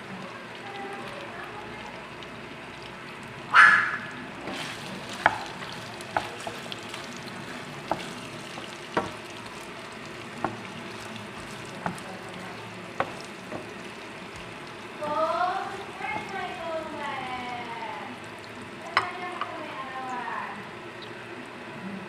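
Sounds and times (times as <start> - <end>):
chicken and onions sizzling in pan: 0.0 - 20.9
wooden spatula knocking on pan: 6.1 - 6.8, 7.8 - 9.6, 10.3 - 12.2, 12.9 - 14.5.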